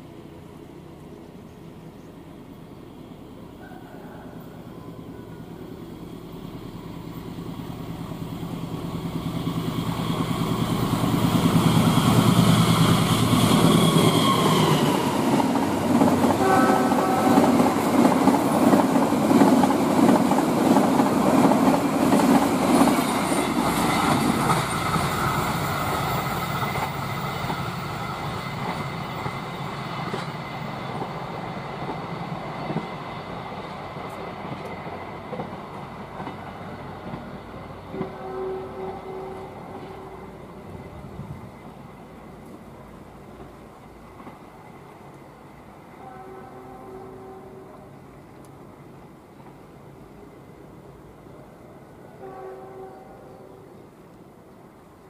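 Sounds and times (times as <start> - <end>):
train wheels clattering on rails: 8.8 - 40.1, 43.3 - 45.3
train horn: 16.3 - 17.7, 37.9 - 40.5, 45.9 - 48.0, 52.1 - 53.8.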